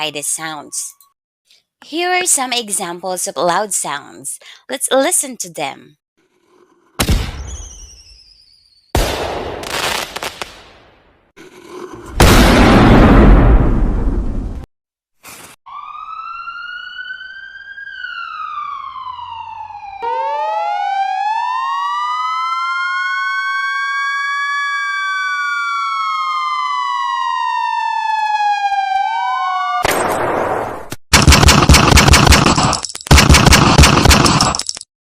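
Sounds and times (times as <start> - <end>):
siren wailing: 15.7 - 29.9.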